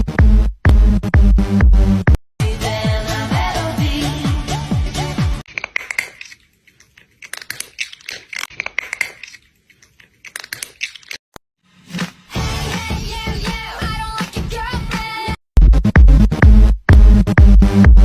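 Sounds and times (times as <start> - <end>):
music: 0.0 - 5.4, 11.9 - 18.0
crunching and clicking: 5.5 - 11.2.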